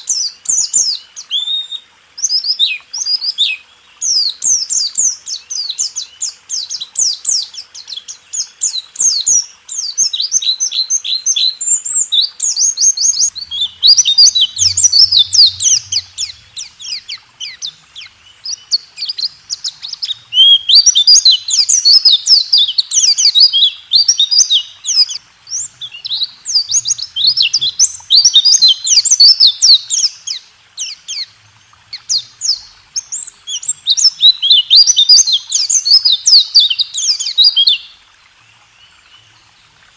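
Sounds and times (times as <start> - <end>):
bird singing rapid high notes: 12.8 - 17.8.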